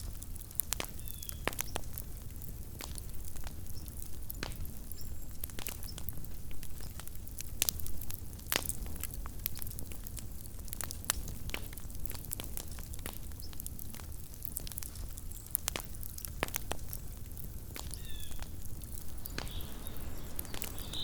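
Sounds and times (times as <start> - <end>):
campfire crackling and popping: 0.0 - 21.0
fire low rumble: 13.7 - 21.0.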